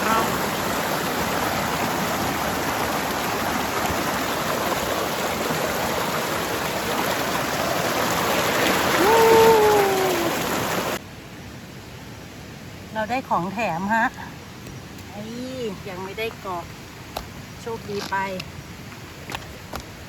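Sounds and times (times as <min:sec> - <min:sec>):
creek water rushing over rocks: 0:00.0 - 0:11.0, 0:15.9 - 0:20.0.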